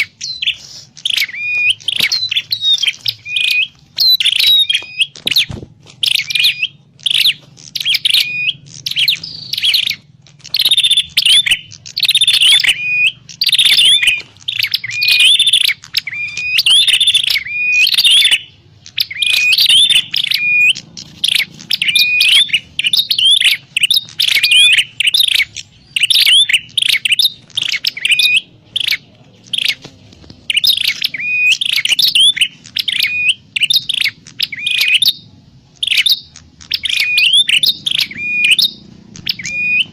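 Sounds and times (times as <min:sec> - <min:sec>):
bird chirping sharply: 0:00.0 - 0:29.8, 0:30.4 - 0:39.9.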